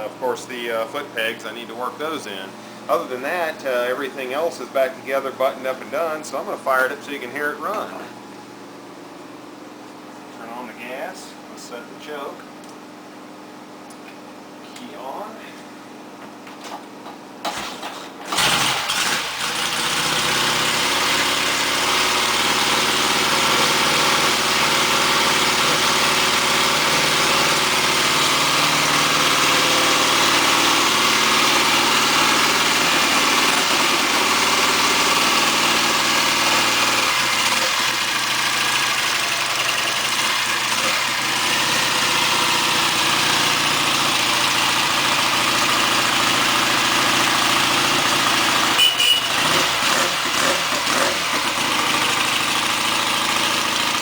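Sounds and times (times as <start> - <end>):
motorcycle engine starting and idling: 16.6 - 54.0.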